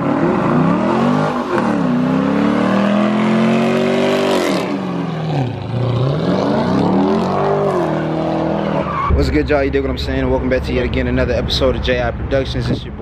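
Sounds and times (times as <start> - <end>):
car engine revving hard: 0.0 - 8.9.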